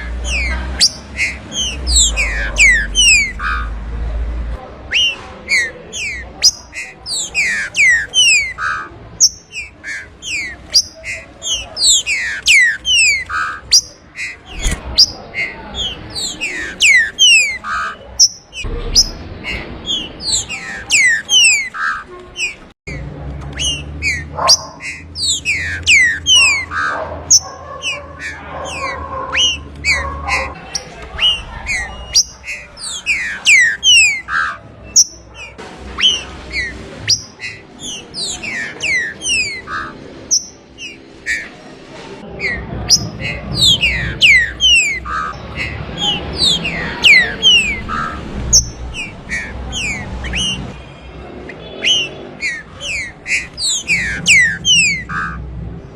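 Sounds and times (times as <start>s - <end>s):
bird singing whistled notes: 0.0s - 3.8s, 4.9s - 22.7s, 23.6s - 30.0s, 42.4s - 50.7s, 51.5s - 55.4s.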